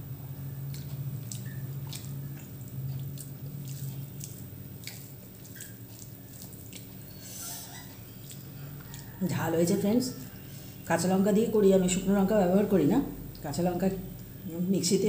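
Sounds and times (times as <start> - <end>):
wet chewing clicks and smacks: 0.0 - 10.5
steady low hum: 0.0 - 15.0.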